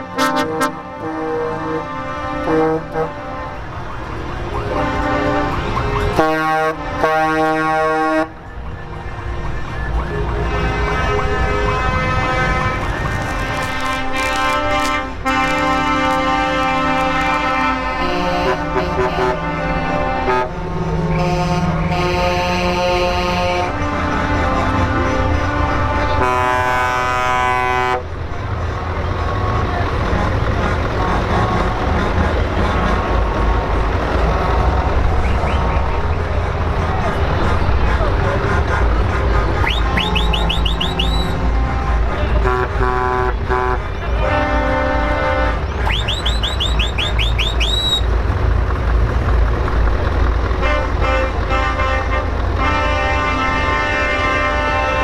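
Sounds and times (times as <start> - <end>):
truck air horn blasts: 0.0 - 8.5, 10.4 - 28.2, 29.2 - 33.6, 38.4 - 48.2, 50.5 - 55.0
background music: 1.6 - 15.4.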